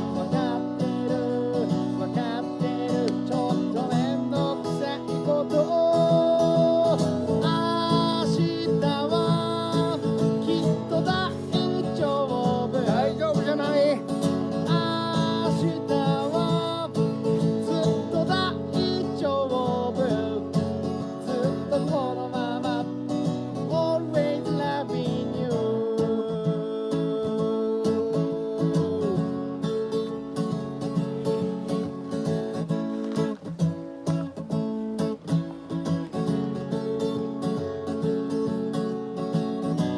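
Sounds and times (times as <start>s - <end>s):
person singing: 0.0s - 30.0s
acoustic guitar playing: 0.0s - 39.9s.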